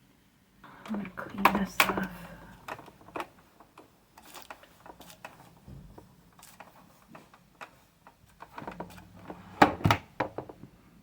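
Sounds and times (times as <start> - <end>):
soft rustle: 1.6 - 9.6.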